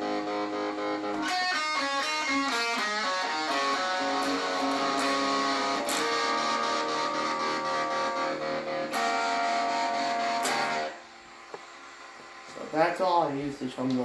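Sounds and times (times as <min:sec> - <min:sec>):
electric guitar with tremolo: 0:00.0 - 0:11.1.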